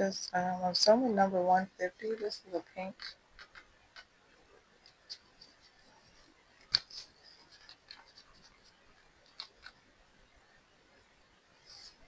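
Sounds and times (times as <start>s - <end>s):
small containers clicking and tapping: 3.0s - 4.1s.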